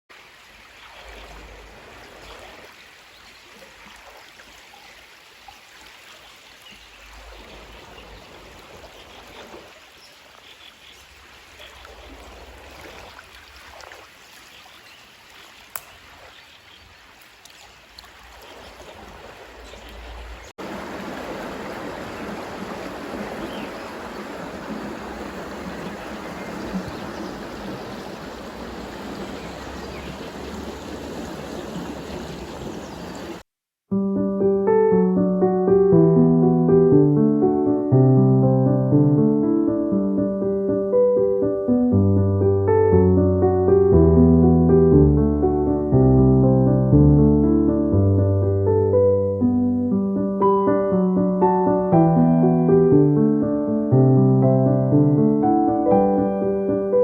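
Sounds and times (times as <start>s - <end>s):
running water rushing: 0.1s - 33.4s.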